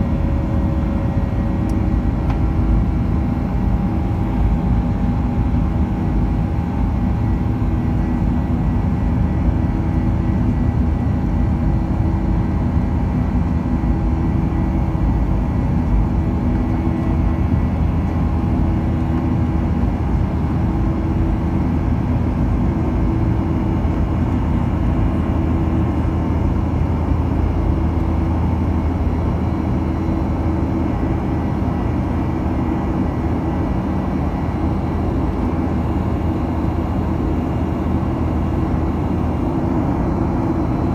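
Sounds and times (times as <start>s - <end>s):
airliner cabin engine drone: 0.0s - 40.9s.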